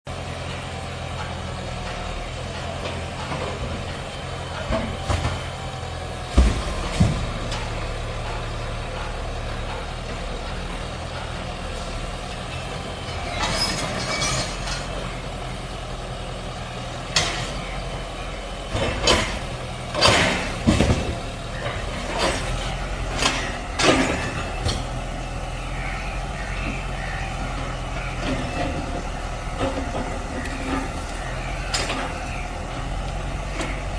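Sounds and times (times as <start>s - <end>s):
heavy diesel machinery running: 0.1s - 33.9s
metallic knocks and clanks: 18.7s - 25.0s.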